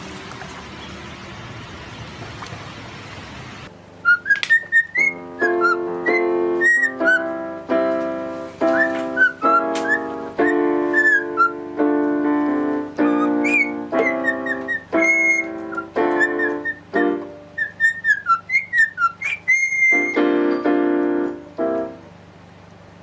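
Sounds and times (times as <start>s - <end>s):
cockatiel whistling chirps: 4.0s - 7.3s, 8.6s - 11.6s, 13.0s - 20.2s
keyboard tune: 4.0s - 19.2s, 19.8s - 22.2s.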